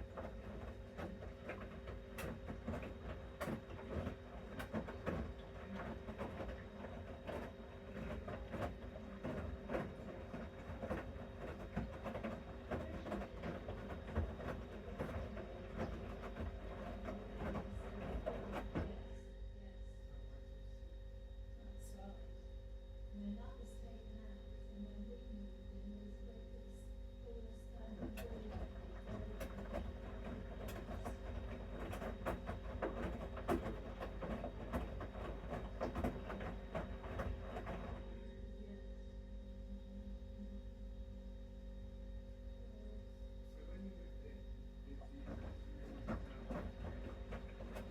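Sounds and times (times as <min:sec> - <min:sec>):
laundry and water sloshing: 0:00.0 - 0:19.1, 0:27.9 - 0:38.2, 0:45.0 - 0:47.9
washing machine motor hum: 0:00.0 - 0:47.9.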